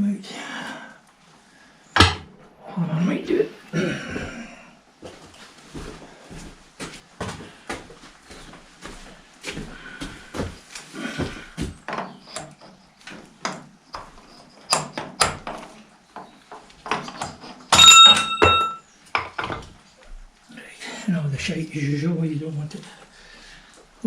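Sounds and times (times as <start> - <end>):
metal parts knocking and clattering: 16.9 - 18.8
ringing metal clang: 17.7 - 18.8.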